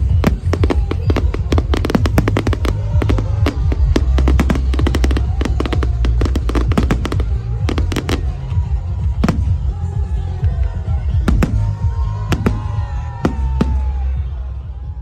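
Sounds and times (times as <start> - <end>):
fireworks cracking and banging: 0.0 - 14.4
deep fireworks booms: 0.0 - 14.6
music playing: 0.0 - 15.0.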